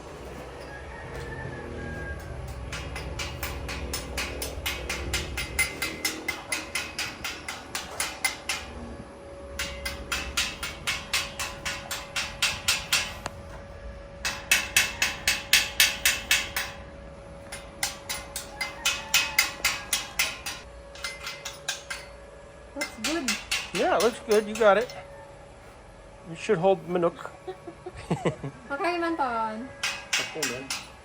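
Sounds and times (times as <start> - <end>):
chipping hammer tapping steel: 2.1 - 8.8, 9.6 - 13.4, 14.2 - 16.8, 17.4 - 22.2, 22.8 - 25.1, 29.8 - 31.0.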